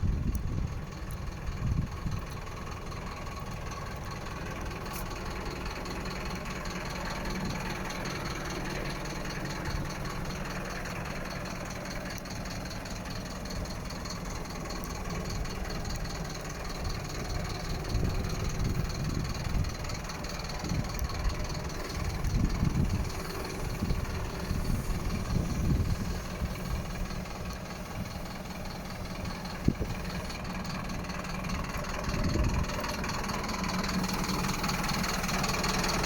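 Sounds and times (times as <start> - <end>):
diesel truck engine idling: 0.0 - 36.0.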